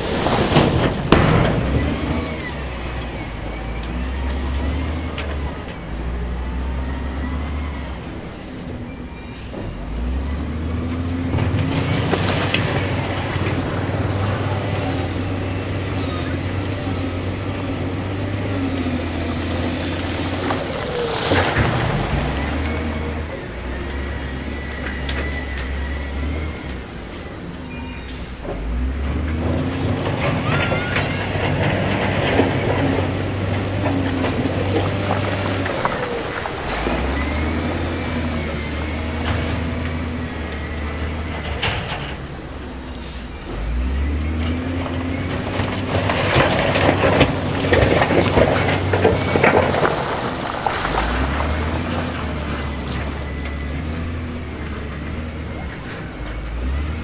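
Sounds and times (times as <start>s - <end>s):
heavy machinery engine rumble: 0.0s - 57.0s
stones clattering and tumbling: 10.8s - 24.1s, 28.6s - 42.8s, 44.3s - 56.7s
metallic squeaks and clanks: 29.6s - 50.0s.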